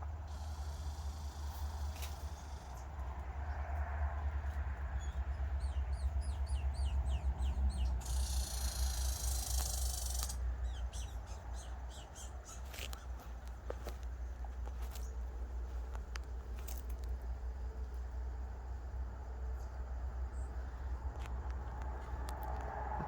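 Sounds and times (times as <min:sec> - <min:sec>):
steady low rumble: 0:00.0 - 0:23.0
small bird chirping: 0:00.2 - 0:03.0, 0:04.9 - 0:17.0.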